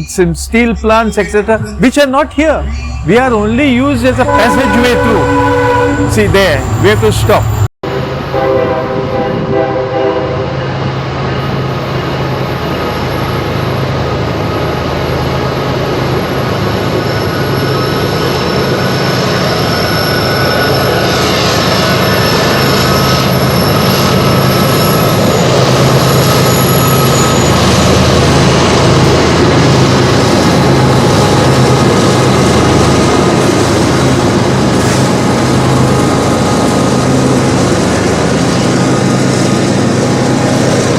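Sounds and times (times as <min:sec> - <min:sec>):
train running on rails: 0:00.0 - 0:40.9
train horn: 0:04.2 - 0:07.0, 0:08.2 - 0:10.8.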